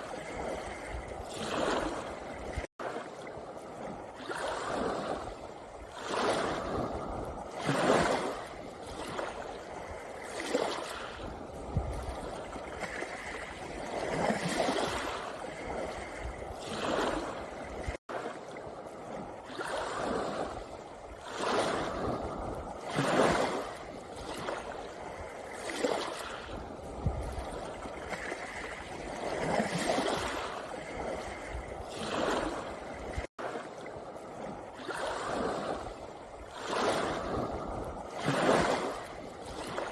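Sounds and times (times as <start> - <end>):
waves washing up a pebble beach: 0.0 - 39.9.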